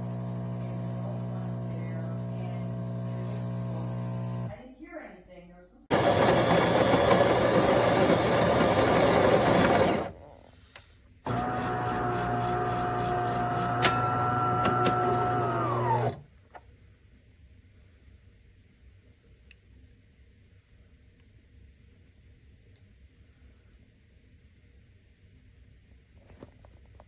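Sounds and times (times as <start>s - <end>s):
coffee grinder running: 0.0s - 4.5s, 5.9s - 10.2s, 11.3s - 16.2s
espresso pump humming: 0.0s - 4.5s, 5.9s - 10.2s, 11.3s - 16.2s.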